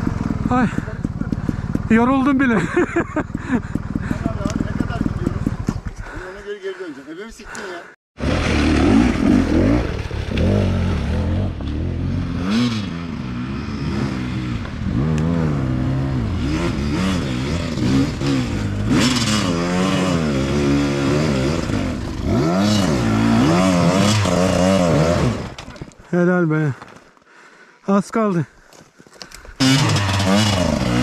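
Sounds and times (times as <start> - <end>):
dirt bike engine revving: 0.0 - 5.8, 8.2 - 25.7, 29.6 - 31.0.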